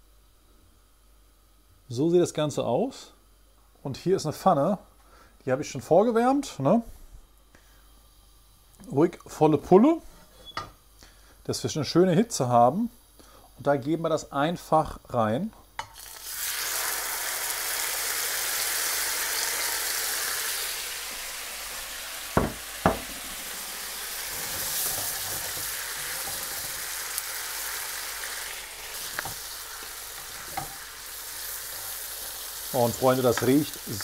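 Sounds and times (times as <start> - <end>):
prawns sizzling in a pan: 15.8 - 34.0.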